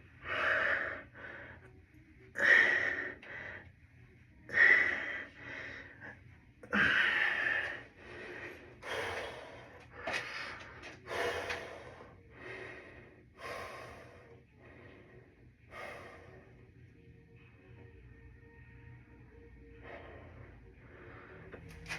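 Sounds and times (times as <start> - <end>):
person breathing hard: 0.0 - 1.8, 2.4 - 3.8, 4.5 - 16.8.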